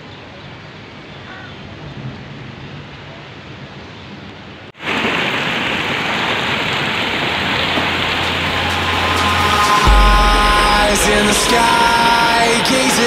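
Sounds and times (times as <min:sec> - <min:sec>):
heavy rain falling: 0:04.8 - 0:13.0.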